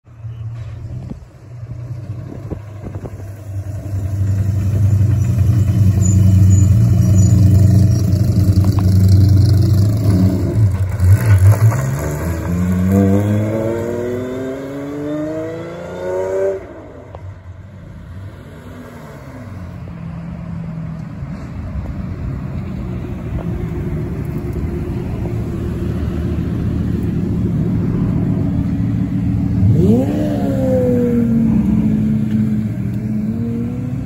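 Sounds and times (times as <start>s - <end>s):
cars driving slowly in convoy: 0.1s - 34.0s
sports car engine revving: 27.9s - 34.0s.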